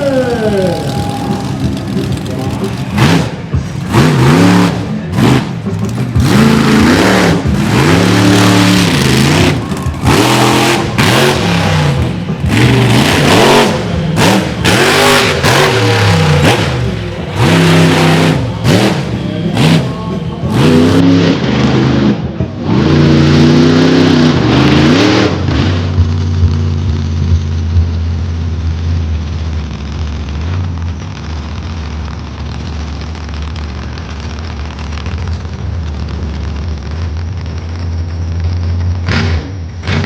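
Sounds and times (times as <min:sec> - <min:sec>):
monster truck engine revving: 0:00.0 - 0:40.0.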